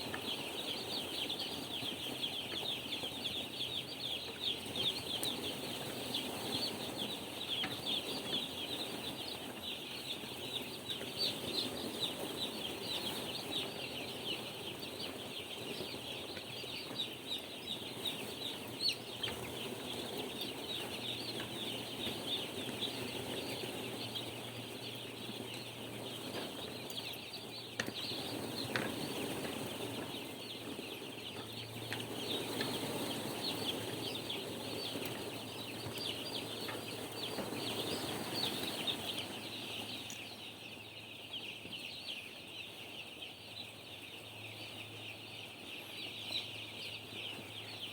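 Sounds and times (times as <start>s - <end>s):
chicks cheeping: 0.0s - 47.9s.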